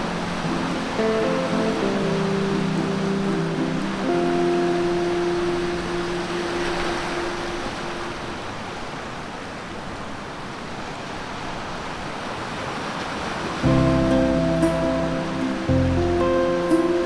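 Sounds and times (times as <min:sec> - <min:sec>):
background music held notes: 0:00.0 - 0:08.4, 0:13.6 - 0:17.0
sea surf washing onto shore: 0:00.0 - 0:17.0.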